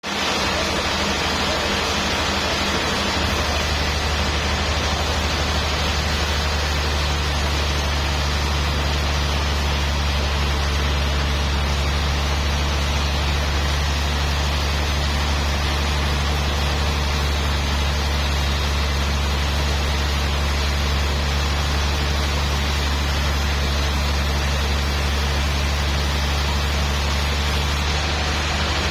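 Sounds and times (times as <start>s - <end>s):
machine humming and hissing: 0.0s - 28.9s.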